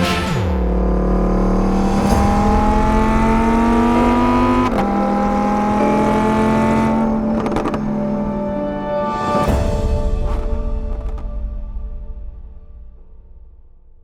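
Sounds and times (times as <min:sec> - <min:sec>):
sports car engine accelerating: 0:00.3 - 0:08.6.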